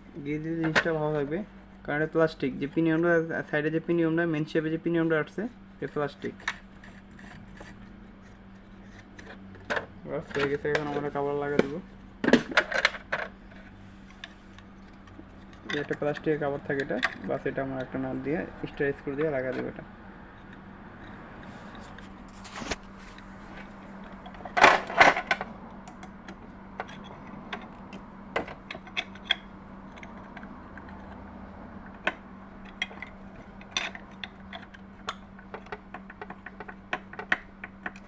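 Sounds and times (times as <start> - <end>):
steady low hum: 0.0 - 38.0
plastic clattering: 9.2 - 13.4, 21.8 - 25.5.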